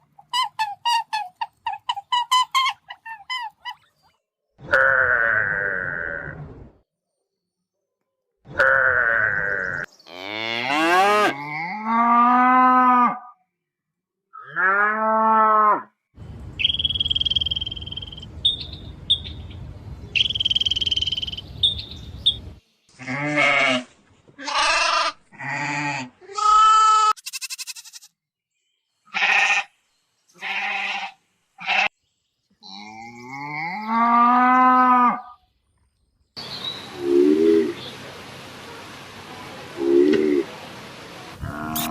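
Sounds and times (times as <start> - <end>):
livestock bleating: 23.0 - 28.2, 29.1 - 29.7, 30.4 - 31.9.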